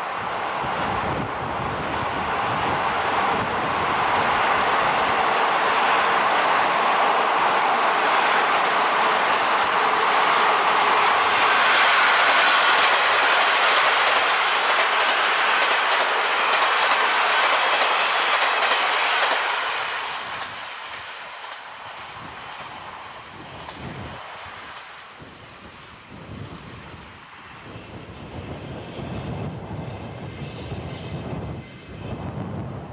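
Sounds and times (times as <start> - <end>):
train wheels clickety-clack: 7.9 - 25.1.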